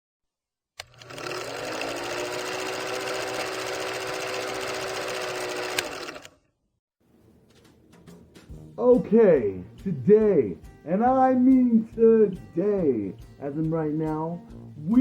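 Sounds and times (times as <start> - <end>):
small motor whirring: 0.8 - 6.4.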